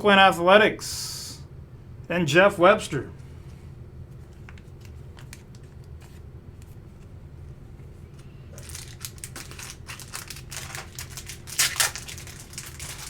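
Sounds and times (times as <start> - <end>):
faint steady hum: 0.0 - 13.0
plastic card sleeves crinkling: 4.1 - 7.1, 8.1 - 13.0.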